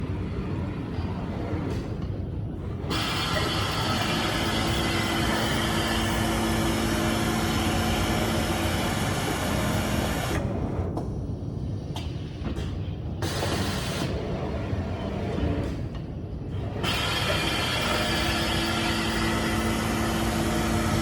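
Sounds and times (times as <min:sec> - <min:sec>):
overlock sewing machine running: 0:02.9 - 0:10.4, 0:16.8 - 0:21.0.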